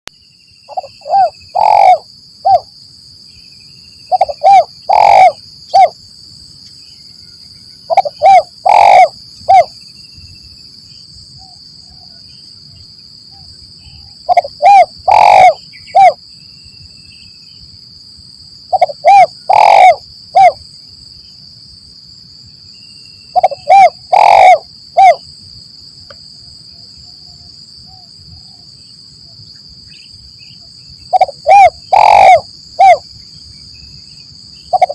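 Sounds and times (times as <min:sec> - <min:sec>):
dove cooing: 0:00.7 - 0:02.7, 0:04.1 - 0:06.0, 0:07.9 - 0:09.7, 0:13.9 - 0:16.2, 0:18.7 - 0:20.6, 0:23.4 - 0:25.2, 0:31.1 - 0:33.0.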